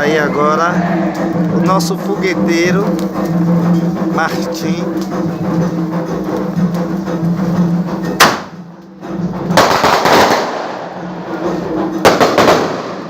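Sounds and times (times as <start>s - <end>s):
fireworks burst: 0.8s - 8.6s, 9.5s - 13.0s
fireworks bang: 8.2s - 8.6s, 9.5s - 11.0s, 12.0s - 13.0s.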